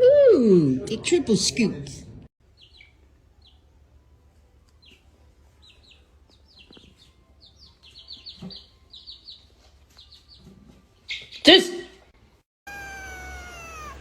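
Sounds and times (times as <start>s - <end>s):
small animal chirping: 12.7s - 14.0s.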